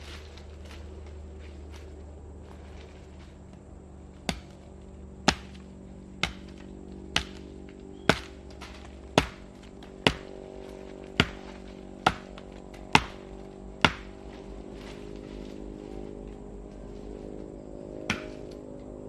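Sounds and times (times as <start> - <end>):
blade chopping into wood: 4.2 - 4.6, 5.2 - 15.4, 18.1 - 18.6.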